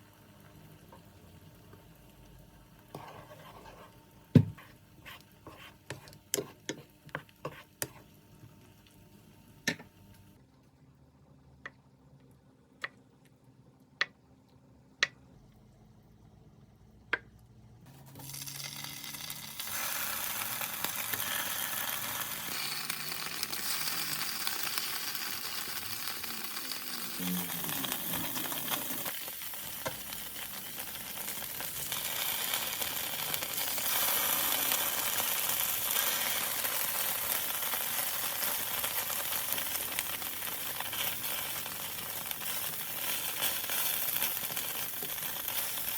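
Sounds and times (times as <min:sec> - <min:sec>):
food sizzling in frying pan: 0:17.9 - 0:45.9.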